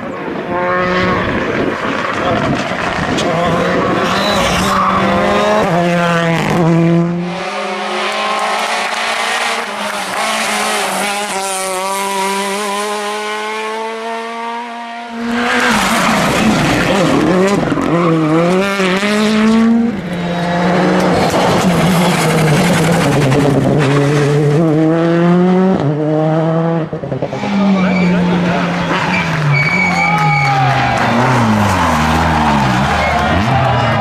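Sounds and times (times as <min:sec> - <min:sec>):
rally car engines revving: 0:00.0 - 0:34.0.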